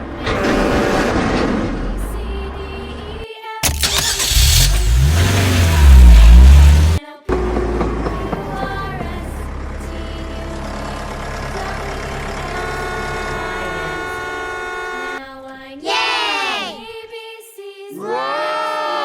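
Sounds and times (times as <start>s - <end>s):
vehicle engine hum: 0.0s - 15.2s.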